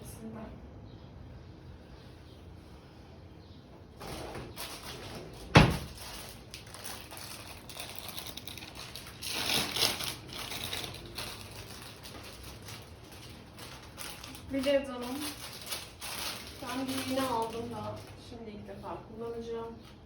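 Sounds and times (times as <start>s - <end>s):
rubber gloves rustling: 4.0s - 19.0s.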